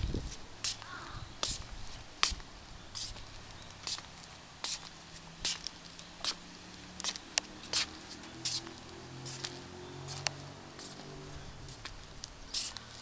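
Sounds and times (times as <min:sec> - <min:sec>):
scuffing footsteps: 0:00.2 - 0:13.0.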